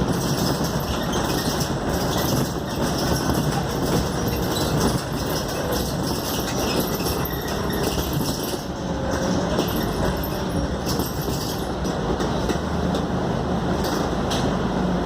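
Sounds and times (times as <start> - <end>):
body and fittings rattling: 0.0 - 11.8
bus engine and road noise: 0.0 - 15.0.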